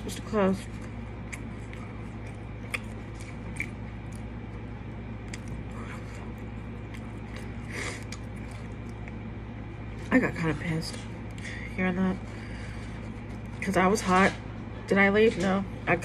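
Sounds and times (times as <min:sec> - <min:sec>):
low hum: 0:00.0 - 0:16.0
person chewing food: 0:00.6 - 0:09.5.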